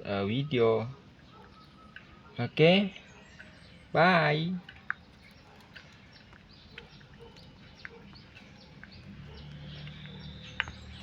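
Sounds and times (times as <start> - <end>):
bird cheeping in high peeps: 0.3 - 2.4.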